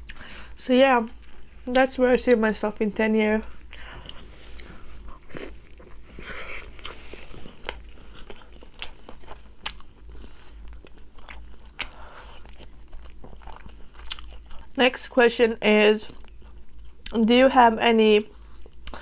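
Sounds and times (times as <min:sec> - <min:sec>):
person chewing food: 0:01.1 - 0:01.7, 0:03.4 - 0:14.8, 0:16.1 - 0:17.2.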